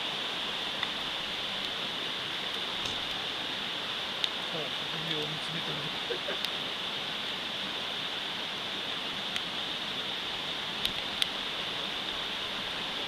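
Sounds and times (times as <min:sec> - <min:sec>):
mountain stream rushing: 0:00.0 - 0:13.0
campfire pops: 0:02.4 - 0:03.3, 0:04.2 - 0:04.4, 0:10.8 - 0:11.4.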